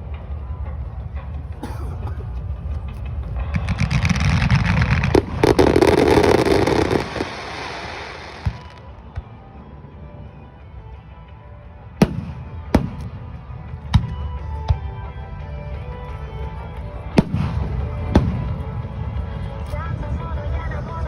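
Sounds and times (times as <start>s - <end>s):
fireworks rumbling bursts: 2.4s - 9.4s, 17.0s - 19.6s
fireworks crackling: 3.1s - 9.1s.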